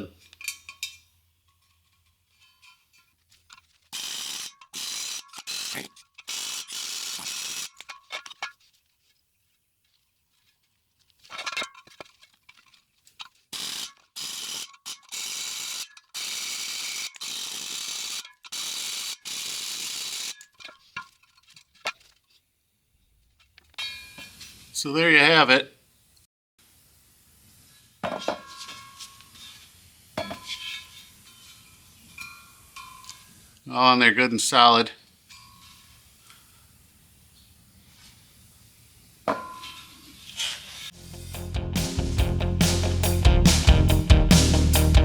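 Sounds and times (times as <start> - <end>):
pneumatic air hammer bursts: 3.9 - 8.0, 13.5 - 20.5.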